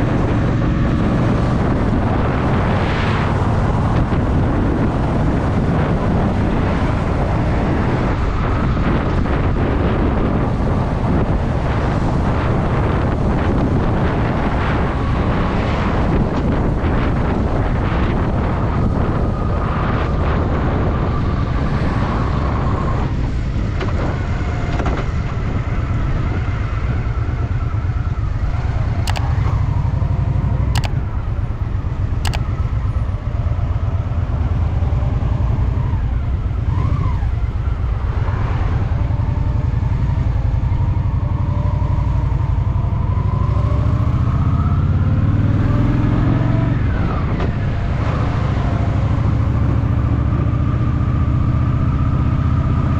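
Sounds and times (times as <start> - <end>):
motorcycle engine rumbling: 0.0 - 45.2
sharp clicks: 29.0 - 29.6, 30.6 - 31.1, 32.2 - 32.5.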